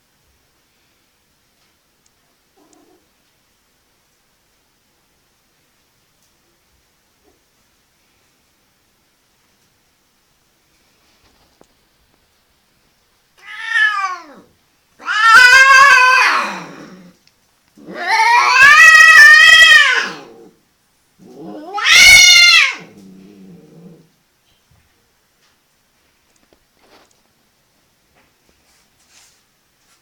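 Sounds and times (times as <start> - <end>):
cat growling: 2.6 - 3.1, 13.4 - 17.2, 17.8 - 20.6, 21.2 - 24.2
cat yowling: 13.4 - 17.1, 17.8 - 20.5, 21.3 - 23.0.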